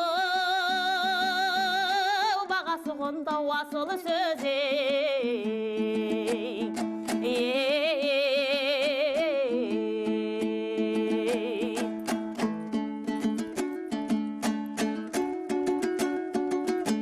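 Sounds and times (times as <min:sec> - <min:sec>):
person singing a wavering vowel: 0:00.0 - 0:12.2
strummed lute: 0:00.0 - 0:17.0.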